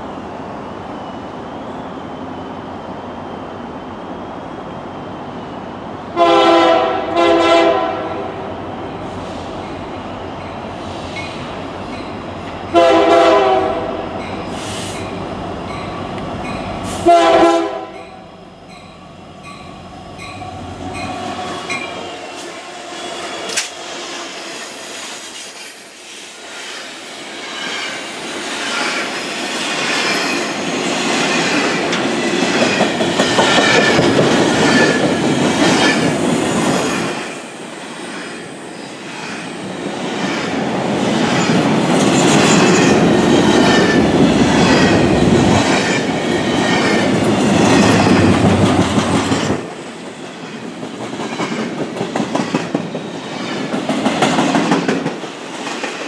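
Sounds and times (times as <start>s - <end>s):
freight train passing: 0.0s - 56.0s
high wheel squeal: 18.5s - 30.4s.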